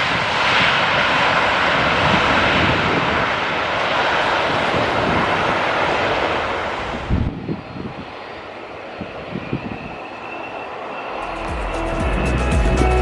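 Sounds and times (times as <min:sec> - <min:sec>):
jet engines running: 0:00.0 - 0:13.0
music: 0:11.2 - 0:13.0.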